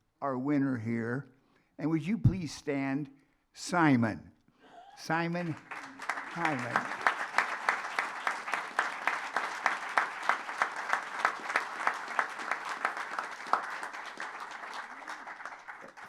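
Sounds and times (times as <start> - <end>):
audience applauding: 5.1 - 16.0
nearby rhythmic claps: 5.4 - 16.0.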